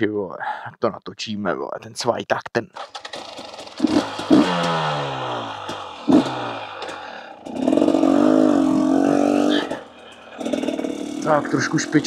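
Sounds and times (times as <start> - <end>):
two-stroke motorcycle engine revving: 2.8 - 12.0.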